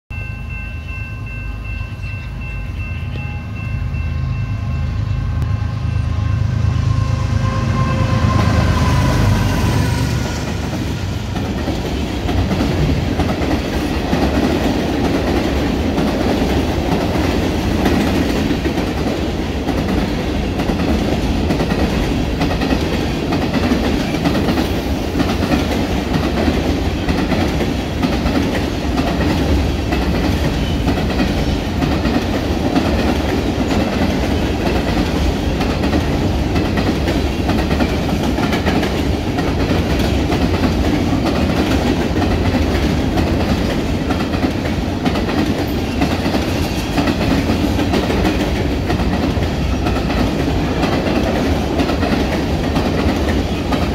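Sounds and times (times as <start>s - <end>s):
diesel locomotive rumble: 1.6s - 13.5s
steel wheels rumbling: 2.3s - 53.9s
train air horn: 3.1s - 11.2s
clickety-clack over rail joints: 10.2s - 53.9s.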